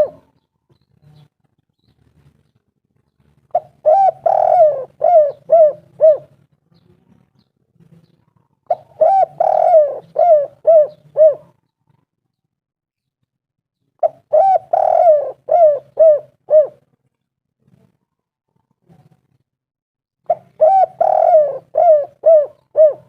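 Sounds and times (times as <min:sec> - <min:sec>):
dove cooing: 0:00.0 - 0:00.4, 0:03.5 - 0:06.4, 0:08.6 - 0:11.6, 0:14.0 - 0:16.9, 0:20.3 - 0:23.0.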